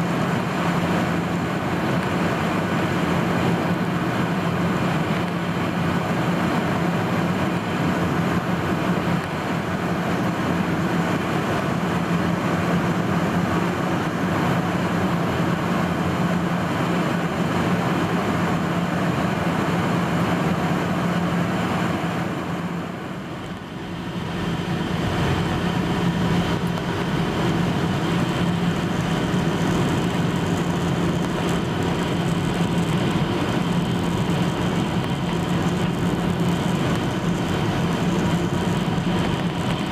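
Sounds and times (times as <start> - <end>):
airflow rush: 0.0 - 39.9
jet engine hum: 0.0 - 39.9.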